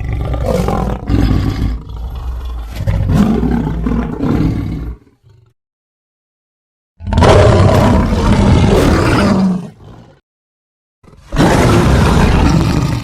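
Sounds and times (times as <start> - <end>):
lion roaring: 0.0 - 5.5, 7.0 - 10.2, 11.0 - 13.0.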